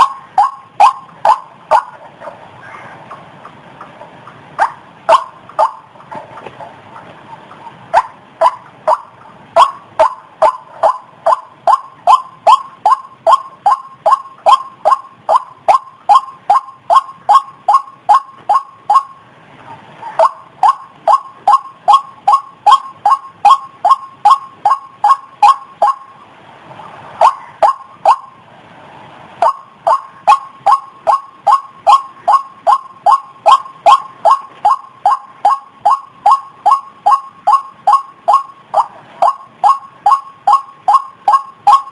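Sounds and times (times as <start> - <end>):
waterhen calling: 0.0 - 28.4, 29.4 - 41.9.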